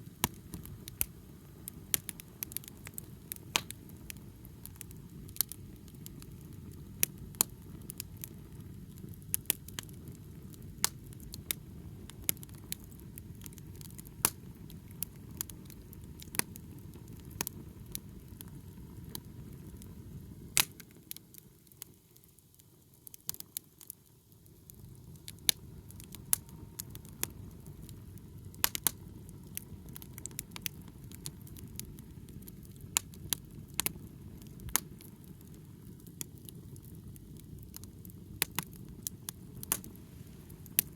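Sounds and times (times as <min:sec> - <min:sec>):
bonfire crackling and popping: 0:00.0 - 0:40.9.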